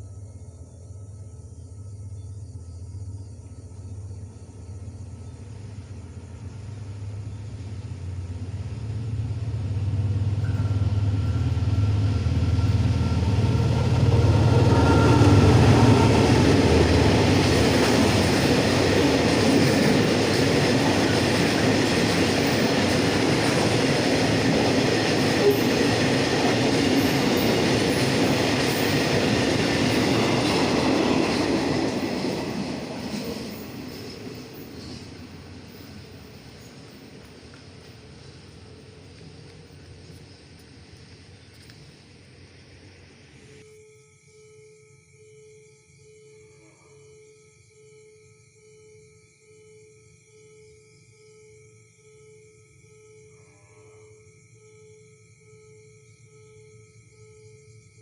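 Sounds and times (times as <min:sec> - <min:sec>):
train engine drone: 0:00.0 - 0:44.0
train wheels clattering on rails: 0:09.4 - 0:41.9.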